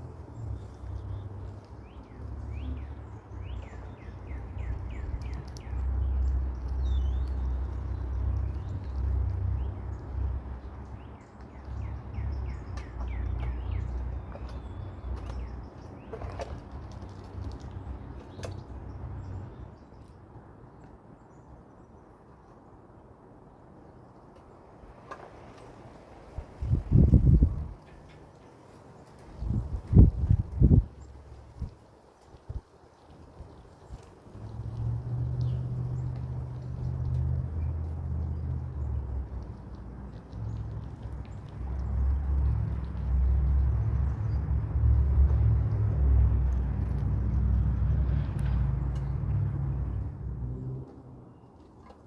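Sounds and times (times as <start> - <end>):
wind buffeting microphone: 26.3 - 28.2, 29.2 - 50.5.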